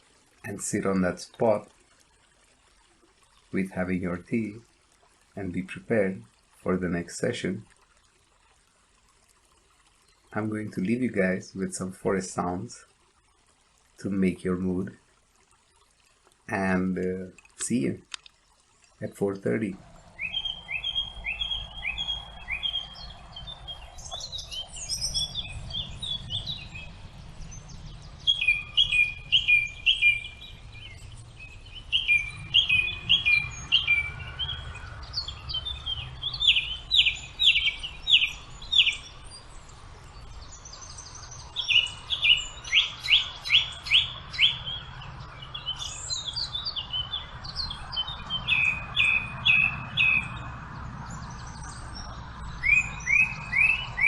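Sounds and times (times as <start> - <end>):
songbirds singing: 15.8 - 54.0.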